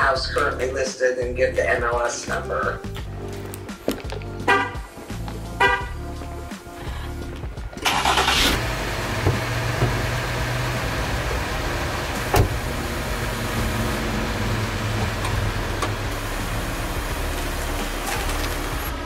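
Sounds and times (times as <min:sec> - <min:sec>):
car engine idling: 0:02.6 - 0:19.0
loud engine burst: 0:07.8 - 0:10.8.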